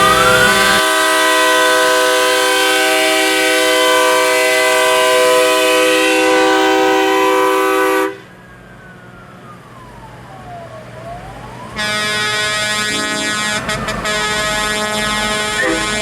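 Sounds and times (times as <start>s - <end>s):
faint siren-like tone: 0.0s - 2.2s, 6.4s - 13.7s
train air horn chord: 0.0s - 8.2s, 11.8s - 16.0s.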